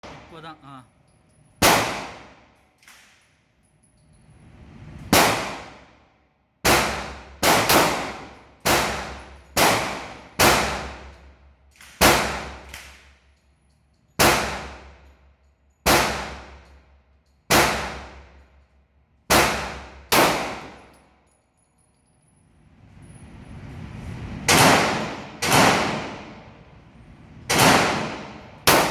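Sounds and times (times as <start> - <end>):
pistol shots: 1.6 - 2.4, 5.1 - 5.8, 6.6 - 11.1, 11.8 - 13.1, 14.2 - 15.0, 15.8 - 16.6, 17.5 - 18.3, 19.3 - 21.0, 24.5 - 26.5, 27.5 - 28.9.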